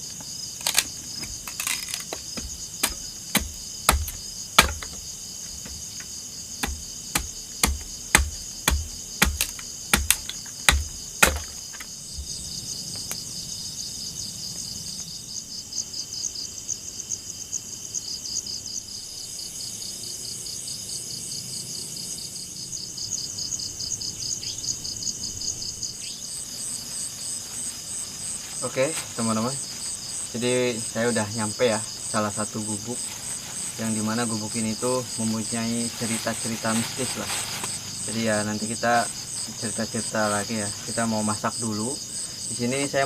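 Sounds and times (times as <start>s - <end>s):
pulsing insect chirring: 0.0s - 16.7s
sharp knocks: 1.2s - 12.3s.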